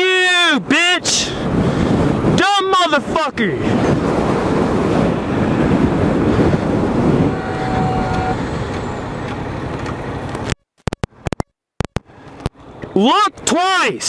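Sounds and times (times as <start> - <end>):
wind rushing on microphone: 0.0 - 13.0
sharp clicks: 8.7 - 12.9.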